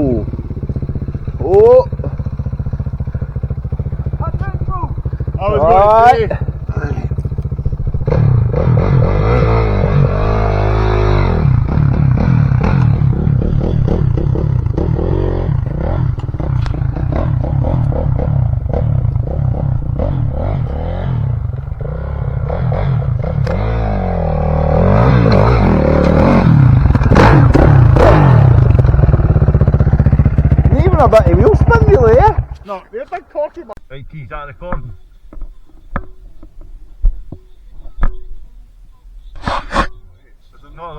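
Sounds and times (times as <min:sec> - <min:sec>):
dirt bike engine revving: 0:00.0 - 0:33.7
bike clattering and scraping: 0:11.7 - 0:23.8, 0:39.4 - 0:40.1.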